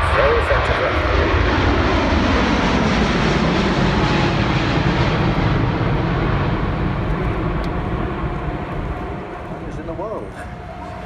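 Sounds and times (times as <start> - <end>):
jet flying past: 0.0 - 11.0.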